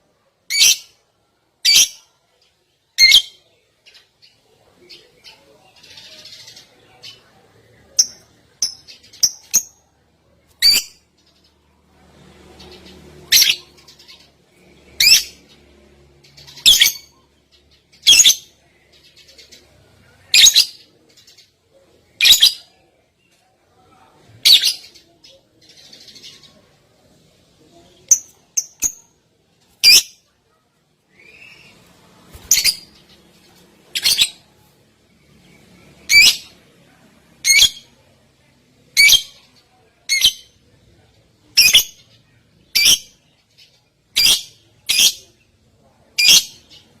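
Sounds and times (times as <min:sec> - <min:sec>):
soft bird twittering: 0:27.6 - 0:45.6.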